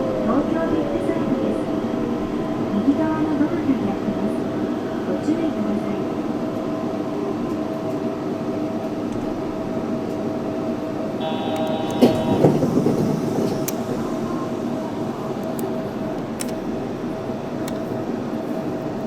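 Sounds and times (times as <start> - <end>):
train motor hum: 10.7 - 19.0
brief higher tone: 11.2 - 13.0.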